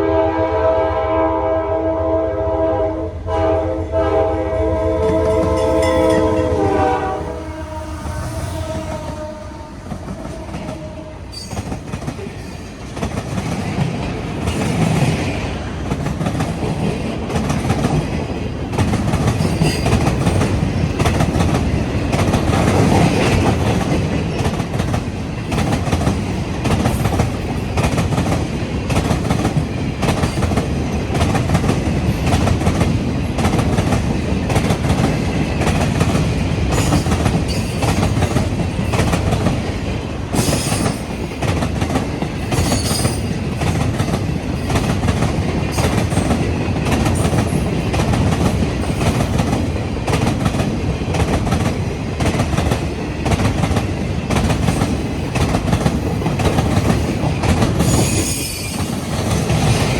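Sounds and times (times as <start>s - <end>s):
train horn blast: 0.0s - 11.7s
train wheels clacking over rail joints: 8.7s - 59.9s.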